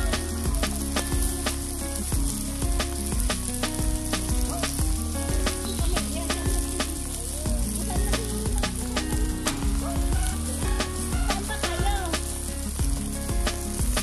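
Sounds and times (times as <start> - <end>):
hot dogs sizzling on grill: 0.0 - 14.0.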